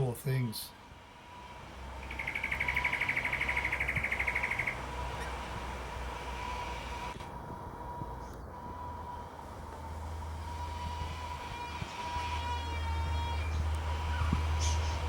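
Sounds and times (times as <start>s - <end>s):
bird trill: 2.0s - 5.4s.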